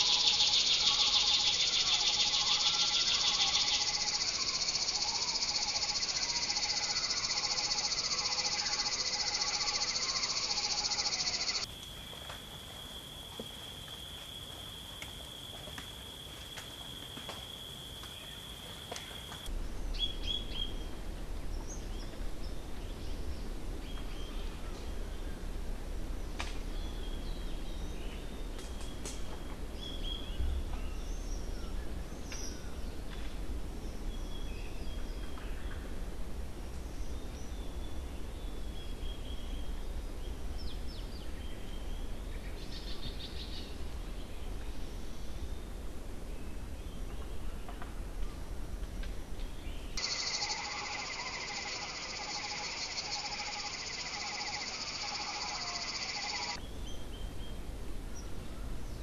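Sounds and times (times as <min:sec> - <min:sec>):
small birds chirping: 0:00.0 - 0:11.7, 0:50.0 - 0:56.6.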